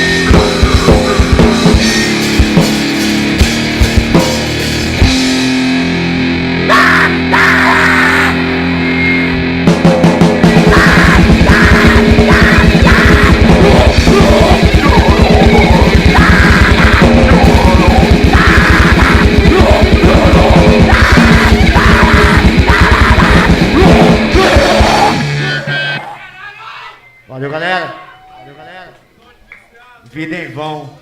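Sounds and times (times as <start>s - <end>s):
blast-beat drums: 0.0s - 6.1s, 9.4s - 25.5s
distorted electric guitar: 0.0s - 26.2s
screamed vocals: 6.6s - 9.3s, 10.5s - 27.0s.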